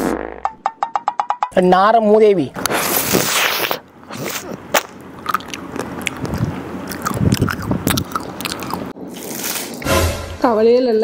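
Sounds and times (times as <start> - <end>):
chocolate crunching: 3.2 - 9.4.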